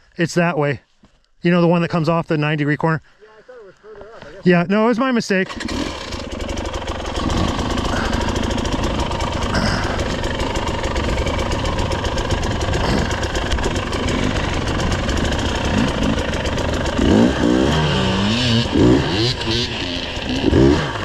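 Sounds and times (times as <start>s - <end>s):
off-road vehicle engine running: 5.3s - 21.0s.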